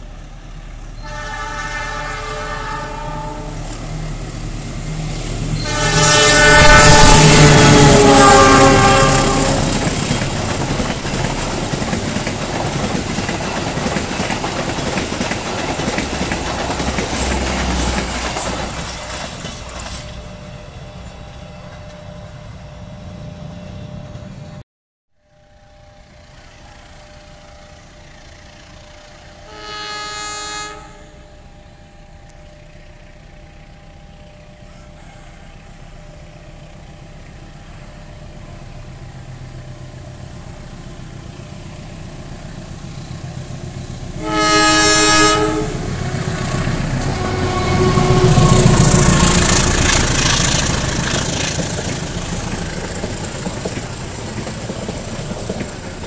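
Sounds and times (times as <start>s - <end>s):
train wheels rushing on rails: 0.0s - 24.6s, 25.8s - 56.0s
distant locomotive horn: 0.9s - 10.6s, 28.6s - 33.2s, 44.0s - 51.5s.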